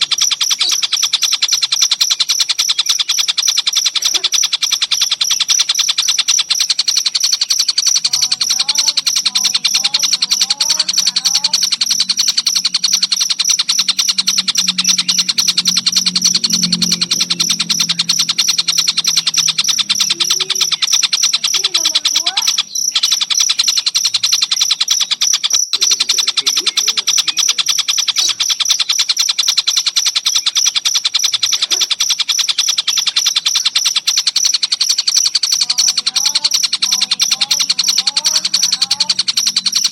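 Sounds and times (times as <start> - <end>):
crickets trilling: 0.0 - 39.9
kingfisher calls: 0.0 - 39.9.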